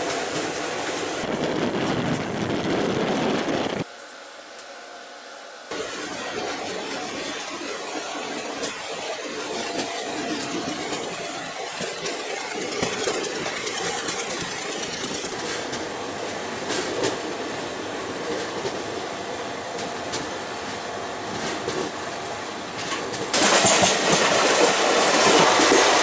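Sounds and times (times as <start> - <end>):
rush of wheel and wind noise: 0.0 - 3.9
wheels clacking over rail joints: 5.7 - 19.1, 19.7 - 26.0.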